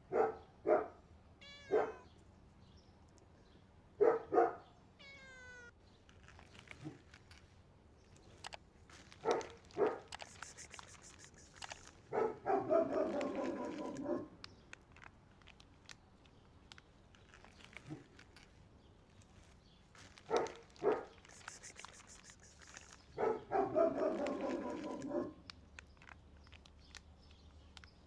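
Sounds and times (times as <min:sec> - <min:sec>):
cat meowing loudly: 0:01.4 - 0:02.1, 0:05.0 - 0:05.8.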